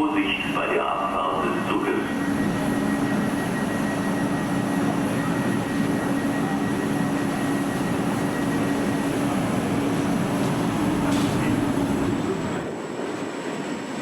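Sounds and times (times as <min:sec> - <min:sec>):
train running by: 0:00.0 - 0:14.0.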